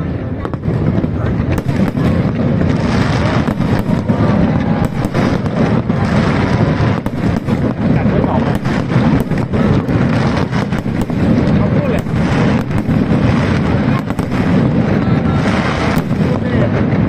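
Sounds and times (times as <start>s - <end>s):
low rumble of fireworks bursts: 0.0s - 17.0s
sharp pops and crackles: 0.4s - 17.0s.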